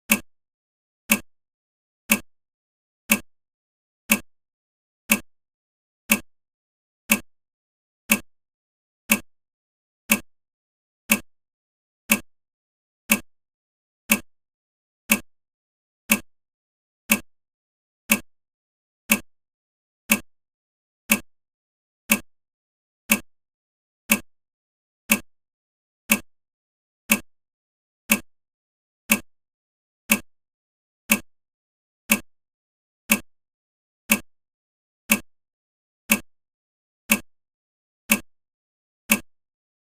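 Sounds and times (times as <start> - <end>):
sharp ticks: 2.1 - 2.3, 13.1 - 13.3, 16.1 - 16.3, 24.1 - 24.3, 25.1 - 25.3, 26.1 - 26.3, 27.1 - 27.3, 28.1 - 28.3, 29.1 - 29.3, 30.1 - 30.3, 31.1 - 31.3, 32.1 - 32.3, 33.1 - 33.3, 34.1 - 34.3, 35.1 - 35.3, 36.1 - 36.3, 37.1 - 37.3, 38.1 - 38.3, 39.1 - 39.3.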